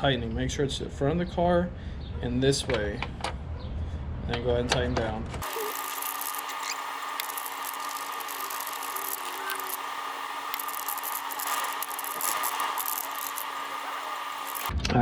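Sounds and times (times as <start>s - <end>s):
steady background hum: 0.0s - 14.8s.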